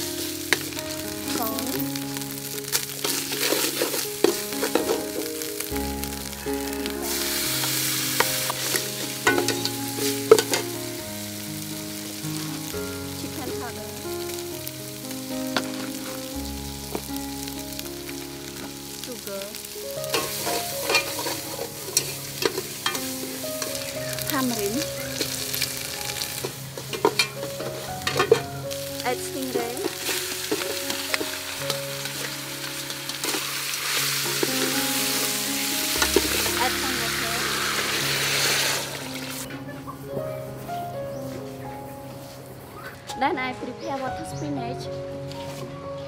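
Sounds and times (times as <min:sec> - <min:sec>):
herb paste sizzling in oil: 0:00.0 - 0:39.6
metal ladle scraping a pot: 0:03.0 - 0:05.3, 0:20.1 - 0:23.9, 0:26.2 - 0:28.5.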